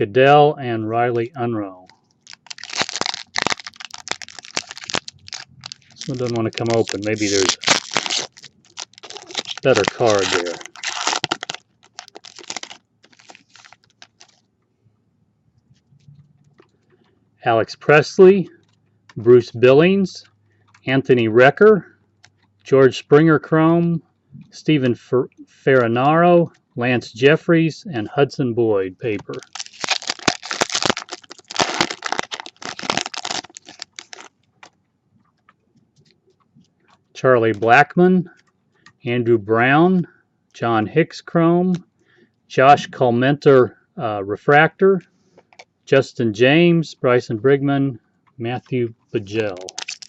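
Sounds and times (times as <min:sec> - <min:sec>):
trading cards clicking: 0:02.1 - 0:14.4
foil wrapper rustling: 0:02.2 - 0:14.4, 0:29.2 - 0:34.7, 0:49.3 - 0:50.0.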